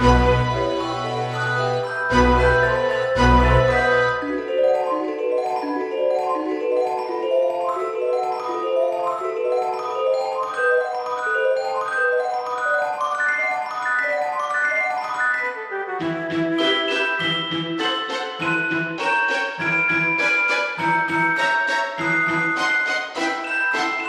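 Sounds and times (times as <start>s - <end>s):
mallet percussion melody: 0.0s - 24.0s.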